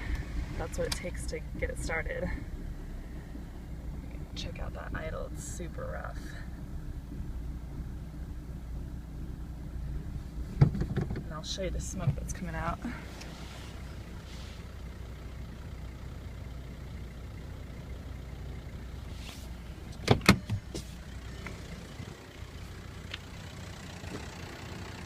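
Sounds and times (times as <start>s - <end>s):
diesel engine idling roughly: 0.0s - 10.5s, 11.4s - 19.9s, 20.6s - 25.0s
sharp engine knocks: 10.5s - 11.3s.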